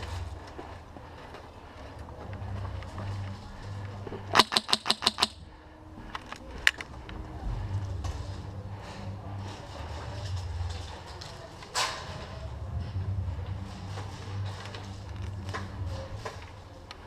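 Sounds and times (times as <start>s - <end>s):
airsoft gun shots: 4.4s - 5.4s.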